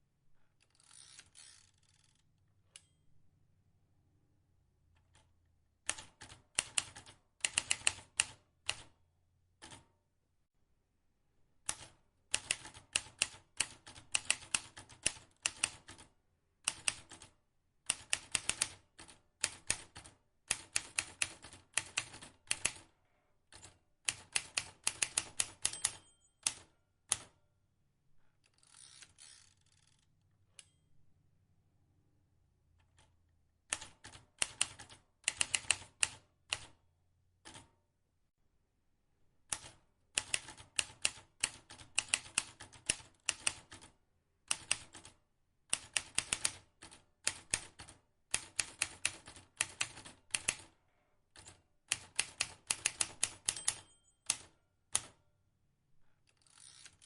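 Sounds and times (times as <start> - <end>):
typewriter keys clicking: 23.6 - 27.3, 33.7 - 36.7, 39.5 - 43.9, 45.8 - 50.7, 51.4 - 55.1.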